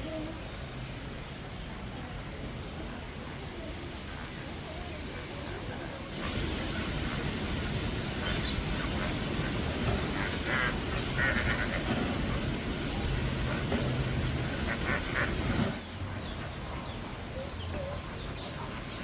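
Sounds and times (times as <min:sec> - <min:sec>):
birds chattering: 0:00.0 - 0:19.0
steady low rumble: 0:00.0 - 0:19.0.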